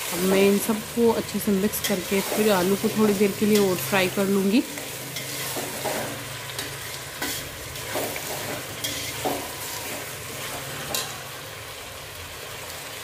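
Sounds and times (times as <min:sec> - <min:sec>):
potatoes sizzling in hot oil: 0:00.0 - 0:13.0
metal spoon scraping a pot: 0:04.7 - 0:11.3.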